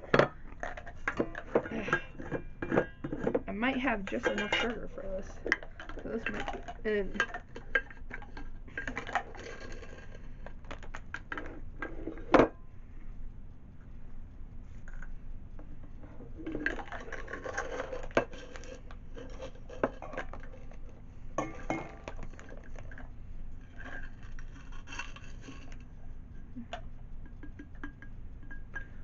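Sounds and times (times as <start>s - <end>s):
kitchenware clicks and knocks: 0.0s - 10.0s.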